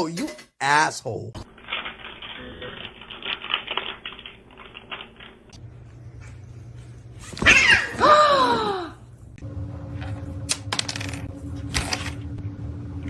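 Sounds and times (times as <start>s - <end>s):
cat yowling: 7.4s - 9.0s.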